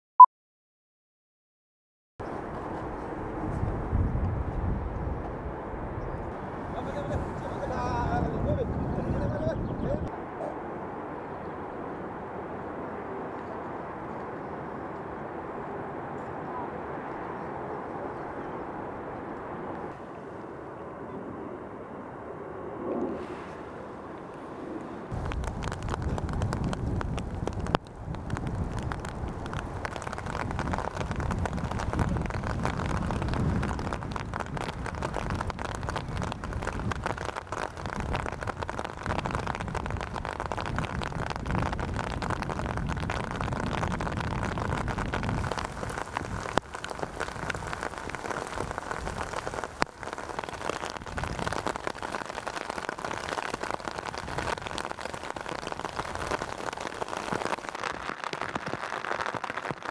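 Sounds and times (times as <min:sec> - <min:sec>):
steady rain: 0:02.2 - 0:08.6, 0:25.0 - 0:59.9.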